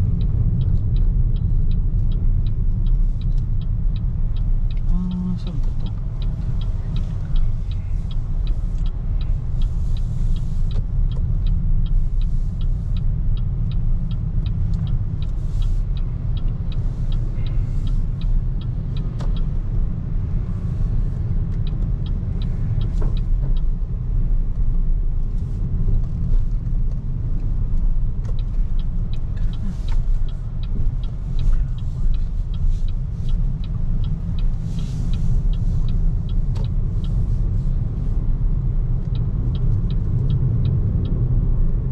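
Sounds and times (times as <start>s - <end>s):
road and tyre rumble: 0.0s - 41.9s.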